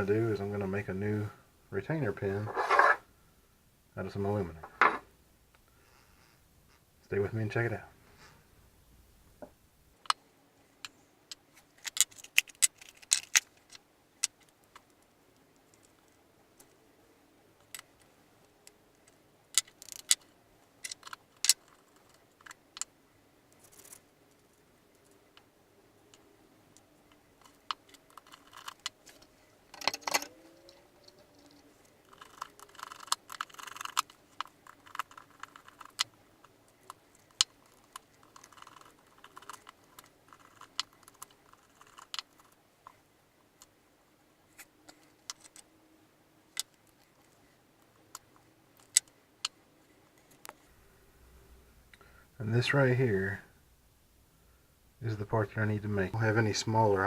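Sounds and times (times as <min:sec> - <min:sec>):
metal parts rubbing: 0:02.4 - 0:03.0.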